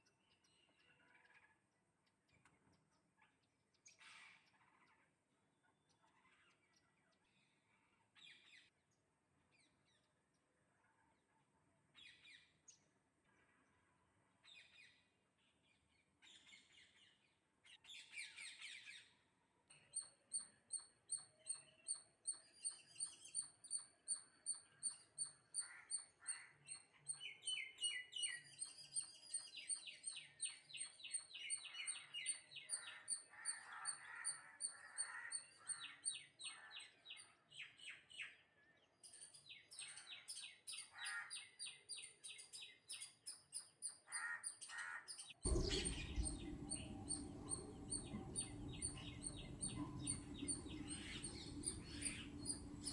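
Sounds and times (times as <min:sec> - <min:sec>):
high chirping calls: 0:45.2 - 0:52.9.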